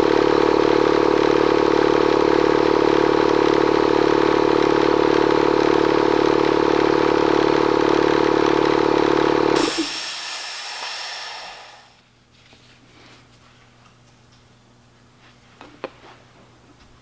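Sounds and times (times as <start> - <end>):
air compressor running: 0.0 - 12.0
air venting hiss: 9.6 - 12.0.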